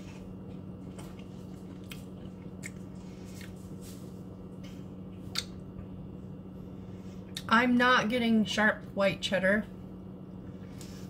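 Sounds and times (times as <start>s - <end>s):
person chewing crisps: 0.0s - 4.1s
steady low hum: 0.0s - 11.0s.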